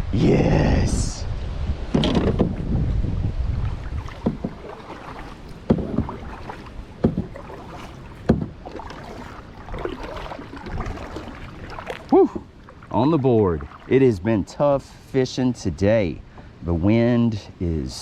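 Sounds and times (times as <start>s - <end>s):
wind buffeting microphone: 0.0s - 14.0s
knocks against kayak hull: 1.9s - 2.7s, 4.0s - 11.2s.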